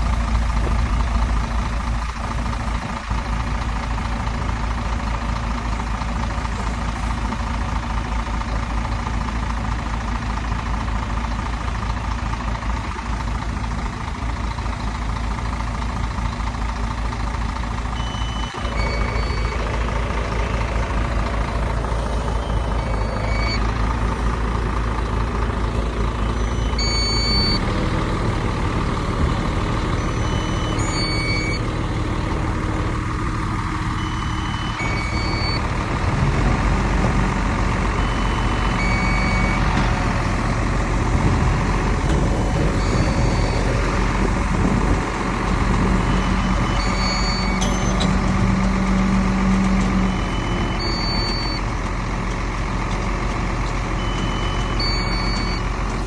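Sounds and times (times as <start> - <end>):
heavy diesel machinery running: 0.0 - 56.0
reversing alarm beeps: 17.5 - 23.7, 26.1 - 27.7, 29.2 - 31.8, 33.4 - 36.4, 37.1 - 39.8, 42.6 - 43.8, 45.8 - 51.8, 53.8 - 55.8.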